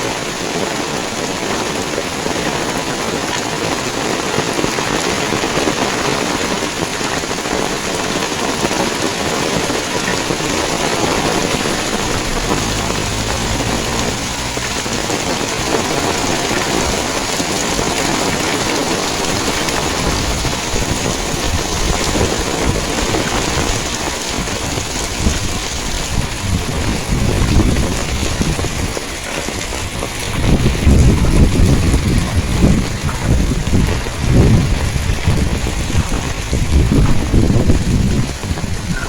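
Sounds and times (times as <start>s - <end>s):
heavy rain hiss: 0.0s - 38.9s
low rumble: 11.2s - 17.1s, 23.6s - 38.4s.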